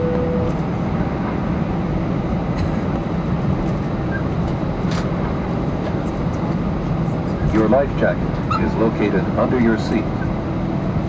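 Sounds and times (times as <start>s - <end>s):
held tone: 0.0s - 0.6s
aircraft cabin rumble: 0.0s - 11.0s.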